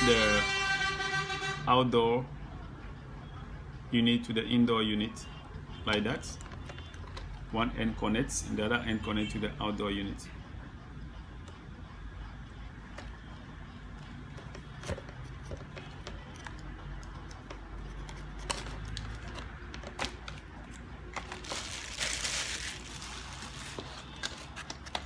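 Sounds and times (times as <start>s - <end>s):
plastic packaging crinkling: 18.4s - 25.0s.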